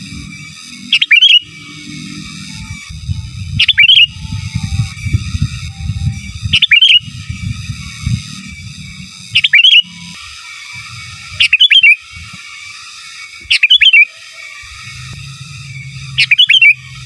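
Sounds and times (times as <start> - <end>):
bird chirping song: 0.9 - 8.6, 9.2 - 10.2, 11.1 - 12.3, 13.4 - 15.0, 16.1 - 17.0.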